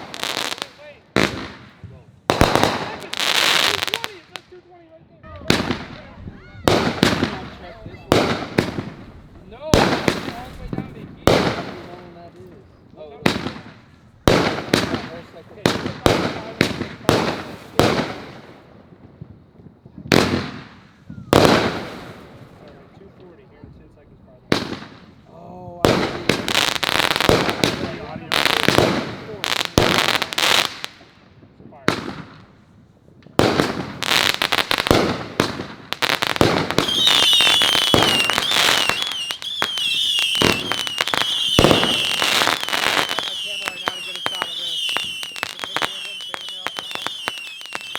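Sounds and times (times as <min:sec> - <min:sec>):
firework bangs with echo: 0:00.0 - 0:04.4, 0:05.2 - 0:22.8, 0:24.4 - 0:31.0, 0:31.8 - 0:32.6, 0:33.3 - 0:47.9
fireworks high whistle: 0:05.2 - 0:11.9, 0:36.7 - 0:47.9.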